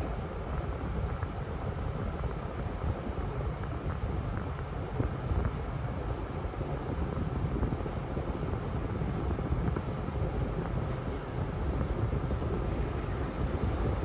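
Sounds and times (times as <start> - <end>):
car wash machinery rumble: 0.0 - 14.0.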